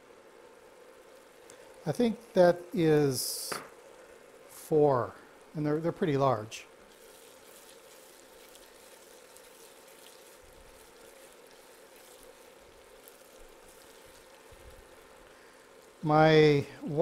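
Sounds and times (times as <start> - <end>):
faint sizzling in a pot: 0.0 - 17.0.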